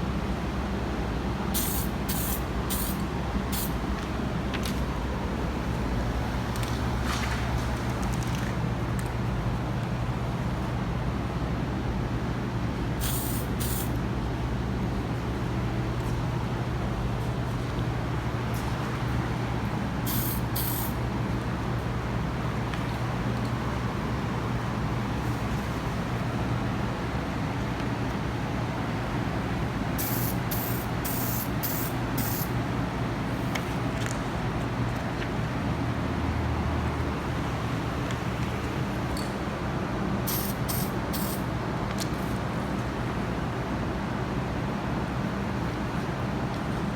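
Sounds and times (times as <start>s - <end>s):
spray paint can hissing: 1.6s - 3.8s, 13.0s - 13.9s, 20.1s - 21.0s, 30.0s - 32.5s, 40.3s - 41.4s
aerosol spray can hissing: 20.1s - 21.0s, 30.0s - 32.5s.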